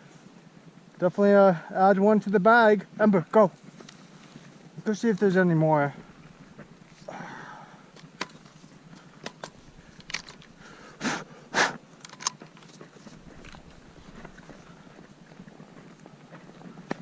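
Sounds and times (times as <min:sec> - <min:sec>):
faint clicks and rustles: 0:03.5 - 0:07.2, 0:07.8 - 0:11.0, 0:11.8 - 0:17.0
sharp sniffs: 0:10.6 - 0:11.8.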